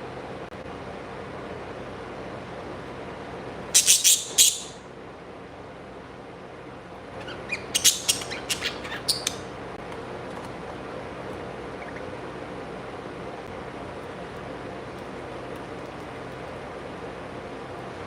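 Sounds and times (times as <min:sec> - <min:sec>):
birds chirping: 0:03.8 - 0:04.8, 0:07.1 - 0:09.6, 0:11.6 - 0:12.2.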